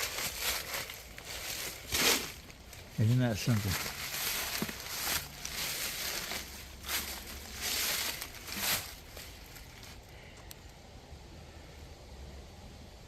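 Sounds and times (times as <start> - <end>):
footsteps crunching through dry leaves: 0.0 - 10.0.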